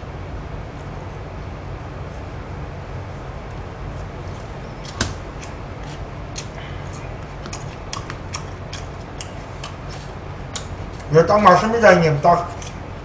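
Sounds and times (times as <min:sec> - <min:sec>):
steady low hum: 0:00.0 - 0:13.0
person chewing: 0:05.4 - 0:11.1.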